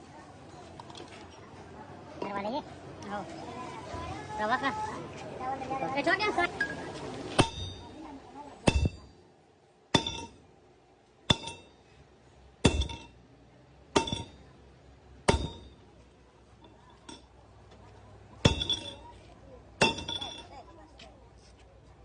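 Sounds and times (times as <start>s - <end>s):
hammer striking steel: 7.4s - 8.0s, 8.6s - 9.1s, 9.9s - 10.4s, 11.3s - 11.8s, 12.6s - 13.2s, 13.9s - 14.5s, 15.2s - 15.8s, 18.4s - 19.1s, 19.8s - 20.6s.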